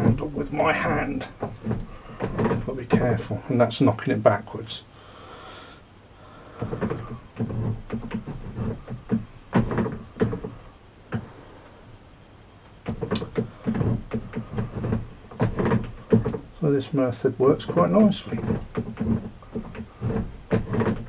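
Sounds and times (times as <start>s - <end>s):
metal knocks and clatter from lathe: 0.0s - 3.2s, 6.6s - 11.2s, 12.8s - 16.6s, 17.6s - 21.0s.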